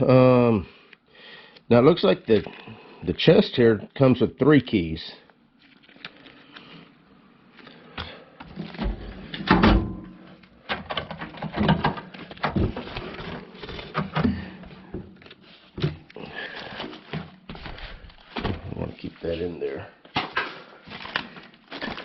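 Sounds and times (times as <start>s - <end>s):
metal tool chest rattling: 10.8s - 12.8s.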